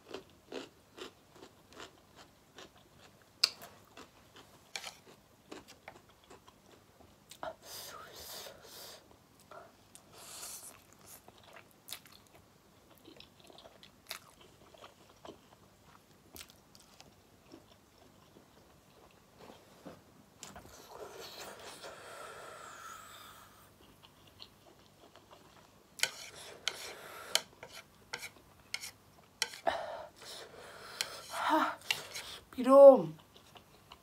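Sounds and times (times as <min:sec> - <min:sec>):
person chewing and crunching food: 0:00.0 - 0:07.4, 0:09.9 - 0:19.6, 0:23.6 - 0:32.4, 0:33.2 - 0:34.0.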